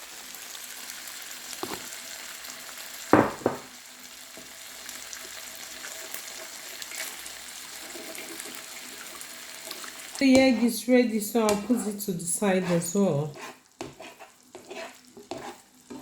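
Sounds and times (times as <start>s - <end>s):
eggs sizzling in frying pan: 0.0s - 16.0s
sharp knocks: 3.2s - 3.7s.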